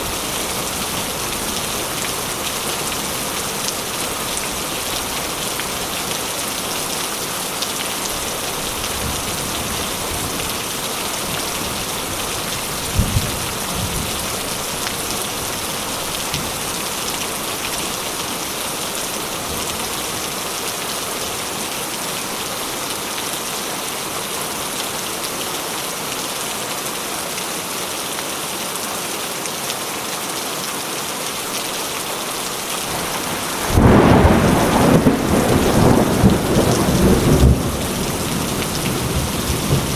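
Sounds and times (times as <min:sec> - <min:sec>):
rain falling on a surface: 0:00.0 - 0:39.9
thunder rumble: 0:32.9 - 0:39.9.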